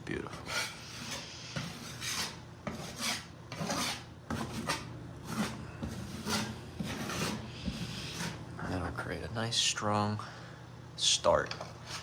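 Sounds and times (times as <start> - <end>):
drywall knife scraping compound: 0.4 - 8.4, 11.7 - 12.0.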